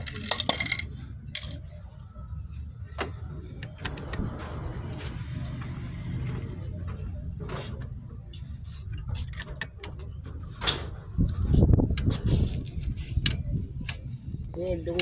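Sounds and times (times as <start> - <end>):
metal tools clinking: 0.0 - 1.6.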